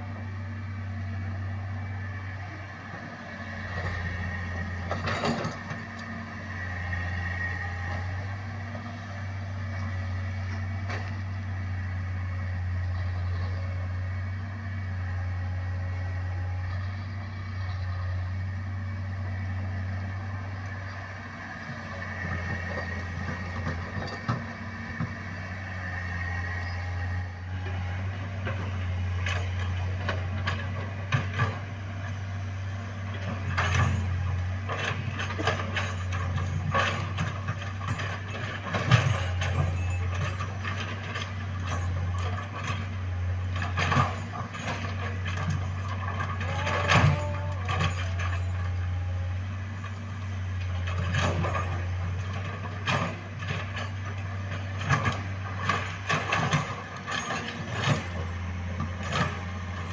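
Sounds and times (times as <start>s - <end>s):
diesel excavator engine running: 0.0s - 59.9s
metallic clanks and knocks: 4.7s - 6.2s, 22.2s - 25.2s, 33.0s - 49.1s, 49.7s - 59.9s.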